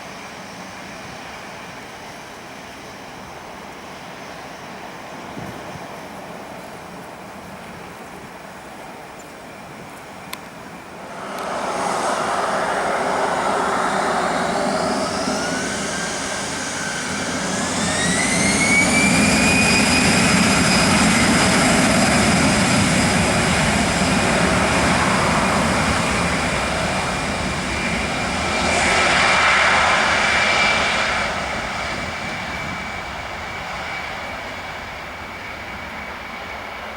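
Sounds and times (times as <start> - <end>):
jet engines spooling up: 10.8 - 36.9.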